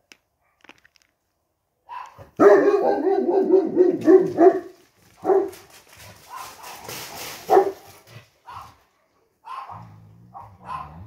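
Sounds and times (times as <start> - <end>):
dogs barking: 1.9 - 5.6, 6.3 - 8.8, 9.4 - 11.0.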